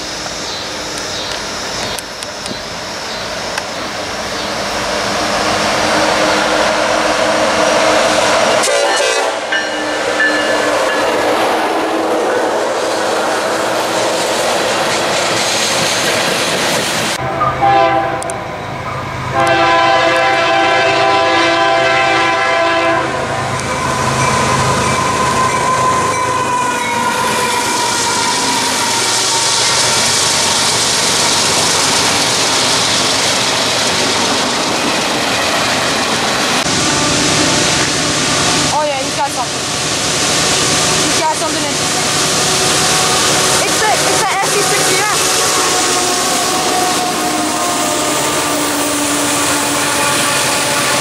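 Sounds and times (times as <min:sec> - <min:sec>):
train wheels rolling on rails: 0:00.0 - 0:51.0
locomotive air horn blasts: 0:08.4 - 0:12.1, 0:17.2 - 0:18.4, 0:19.3 - 0:29.5, 0:42.5 - 0:51.0.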